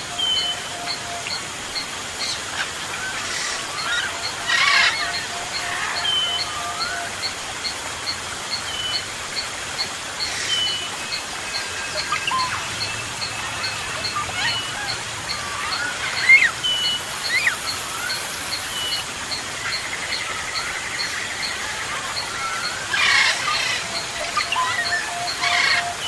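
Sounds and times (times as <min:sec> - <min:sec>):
faint steady hiss: 0:00.0 - 0:26.0
birds whistling: 0:10.3 - 0:19.0.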